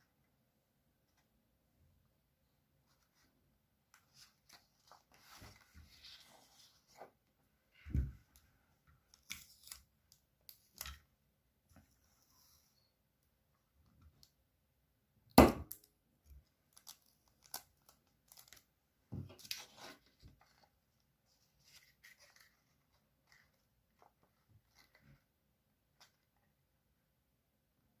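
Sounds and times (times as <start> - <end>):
paper being folded and creased: 3.9 - 7.2, 9.1 - 11.0, 16.6 - 18.7, 19.3 - 25.3.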